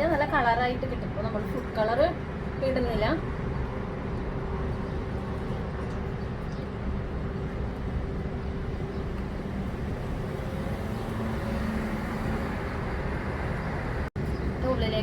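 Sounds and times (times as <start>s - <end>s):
low mechanical hum: 0.0s - 12.7s.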